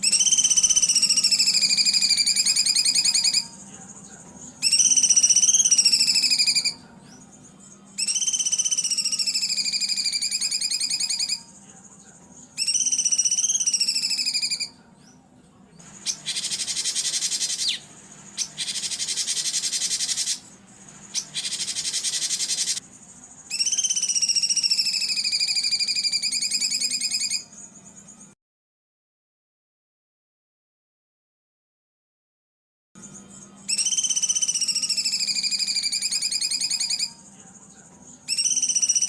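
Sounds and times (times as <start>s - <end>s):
songbird trilling: 0.0s - 11.6s, 12.3s - 15.2s, 15.8s - 27.7s, 33.1s - 37.3s, 38.0s - 39.0s
harsh buzzy bird phrases: 0.0s - 28.1s, 33.0s - 39.0s
faint steady hum: 0.0s - 28.4s.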